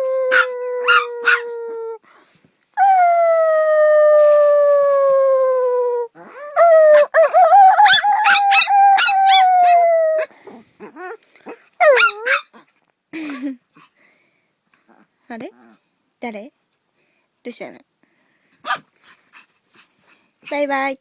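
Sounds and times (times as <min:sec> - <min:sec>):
dog howling: 0:00.0 - 0:02.0, 0:02.8 - 0:10.3.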